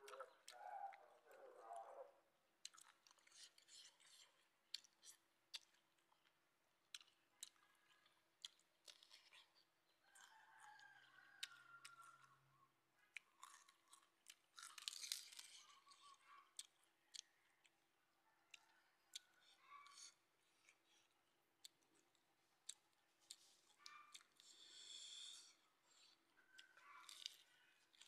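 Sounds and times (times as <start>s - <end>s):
chewing and crunching food: 0.0s - 28.0s
lettuce leaves rustling and tearing: 14.6s - 15.8s.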